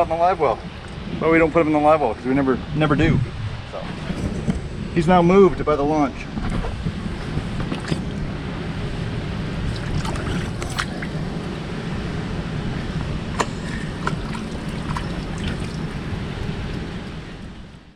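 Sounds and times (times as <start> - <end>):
wind rumbling on microphone: 0.0 - 17.9
water lapping and sloshing: 7.0 - 11.6, 13.2 - 17.9.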